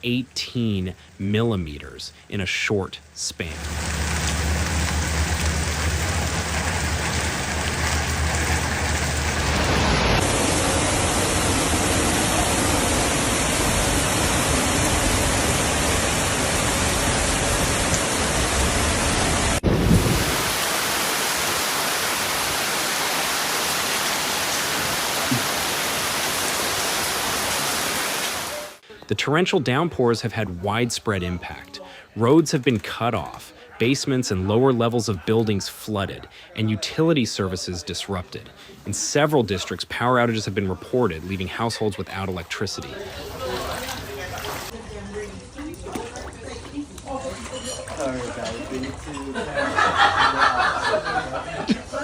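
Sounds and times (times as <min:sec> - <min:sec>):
torrential rain: 0:03.0 - 0:28.8
rushing floodwater: 0:03.5 - 0:28.8, 0:39.1 - 0:44.8.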